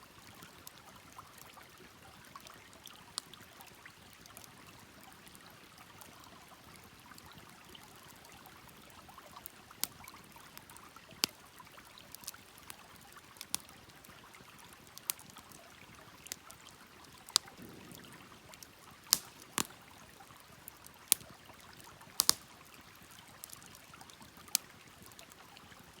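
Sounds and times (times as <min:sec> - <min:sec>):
wood fire crackling: 0:08.2 - 0:26.0.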